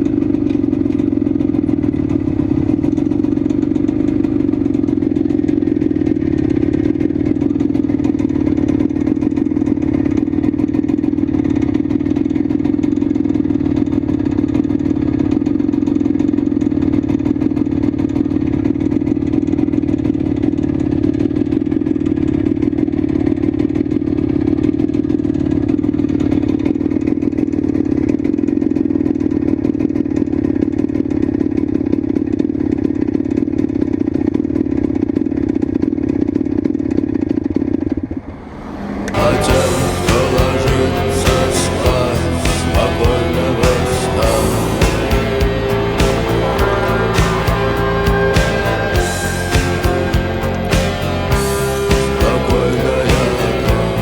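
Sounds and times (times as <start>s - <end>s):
two-stroke motorcycle engine running: 0.0s - 37.9s.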